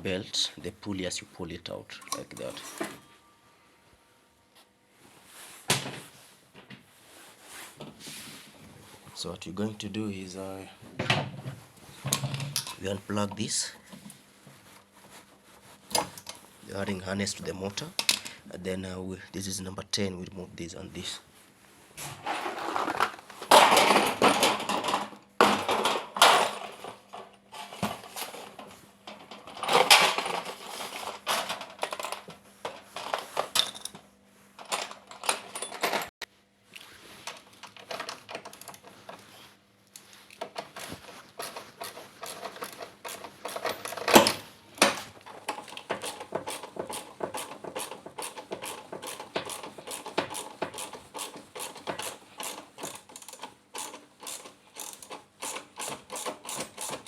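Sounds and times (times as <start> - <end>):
metal tools clinking: 34.6 - 36.1, 40.7 - 44.5.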